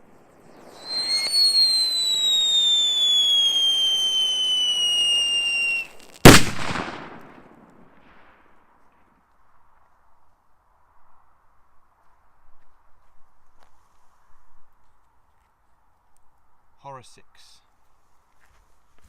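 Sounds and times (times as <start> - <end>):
firework rocket whistling: 0.0 - 7.0
firework bang with echo: 6.2 - 7.4.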